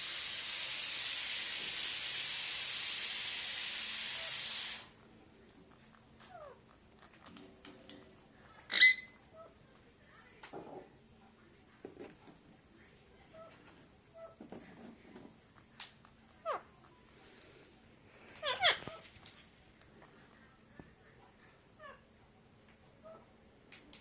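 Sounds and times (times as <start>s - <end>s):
steady hiss: 0.0s - 6.1s
faint small sounds: 4.9s - 24.0s
parrot squawk: 8.7s - 9.5s, 16.4s - 16.7s, 18.4s - 19.0s.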